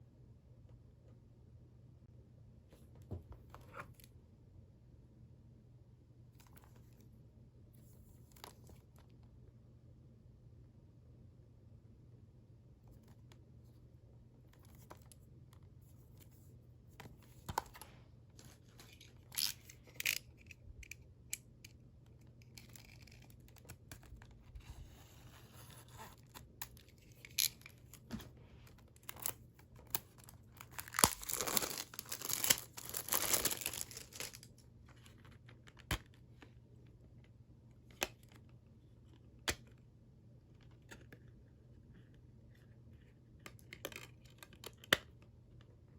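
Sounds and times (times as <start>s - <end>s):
cellophane crinkling and tearing: 28.8s - 34.6s.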